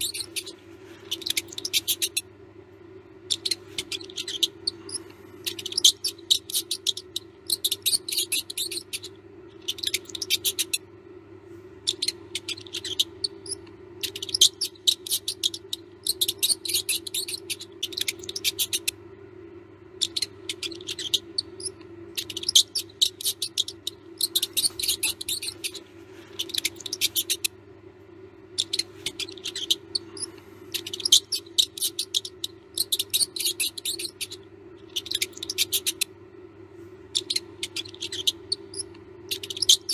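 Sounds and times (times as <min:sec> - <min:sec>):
mouse squeaking and scratching: 0:00.0 - 0:02.4, 0:03.2 - 0:10.9, 0:11.8 - 0:19.0, 0:19.9 - 0:27.6, 0:28.5 - 0:36.2, 0:37.1 - 0:39.9
steady low hum: 0:00.0 - 0:39.9.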